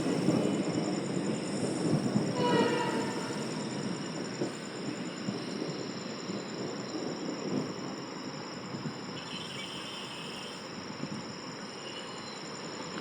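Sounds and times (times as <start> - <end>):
train rumbling past: 0.0 - 13.0
train horn: 2.3 - 3.6.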